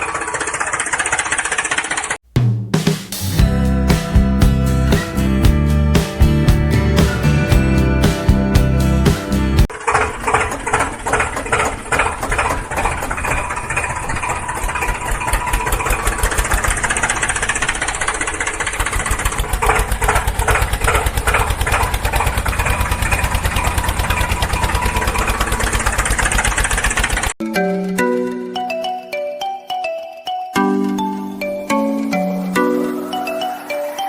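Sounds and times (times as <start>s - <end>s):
small engine running: 0.0s - 2.2s, 3.4s - 28.8s.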